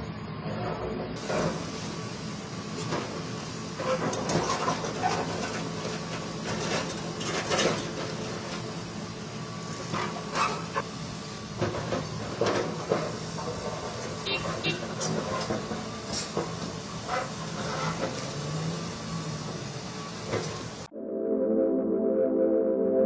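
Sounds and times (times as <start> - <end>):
clanks knocks and clatter: 3.8 - 8.6, 11.6 - 18.3.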